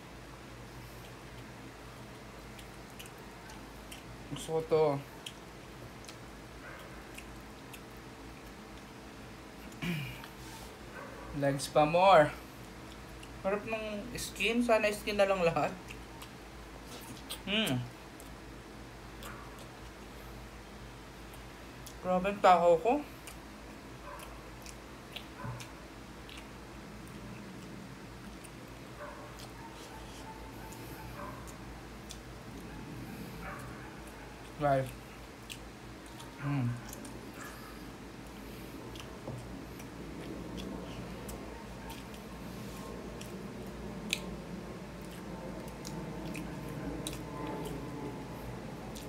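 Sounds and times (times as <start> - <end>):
steady low hum: 0.0 - 49.0
person chewing with mouth clicks: 0.9 - 4.5, 5.2 - 9.0, 12.6 - 13.4, 15.8 - 18.4, 21.2 - 22.0, 23.1 - 32.7, 33.6 - 49.0
wet mouth clicks and smacks: 44.0 - 44.4.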